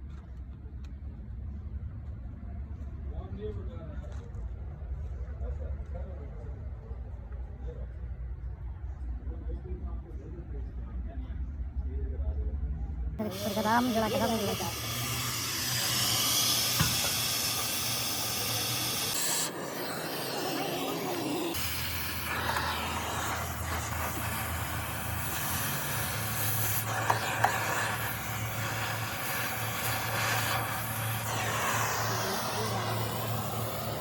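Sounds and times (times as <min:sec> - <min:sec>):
steady hiss: 0:13.2 - 0:34.0.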